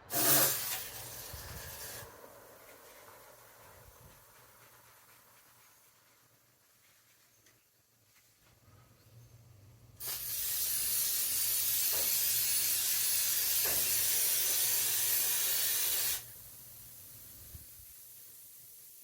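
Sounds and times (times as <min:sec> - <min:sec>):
aerosol spray hissing: 0:00.1 - 0:02.1, 0:10.0 - 0:19.0.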